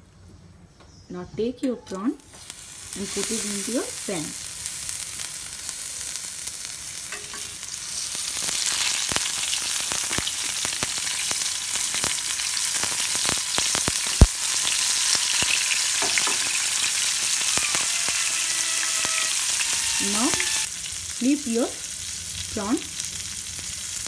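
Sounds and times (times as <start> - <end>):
prawns sizzling in oil: 2.2 - 24.0
crackling pops: 8.1 - 20.7.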